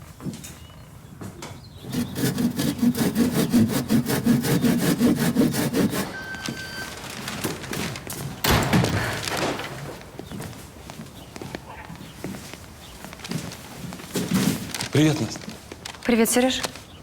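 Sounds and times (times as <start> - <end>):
fast rasping strokes: 1.9 - 6.2.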